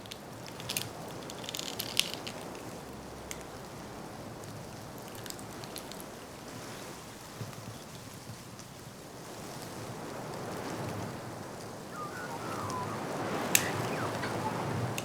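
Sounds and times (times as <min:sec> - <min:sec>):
steady rushing noise: 0:11.9 - 0:15.0.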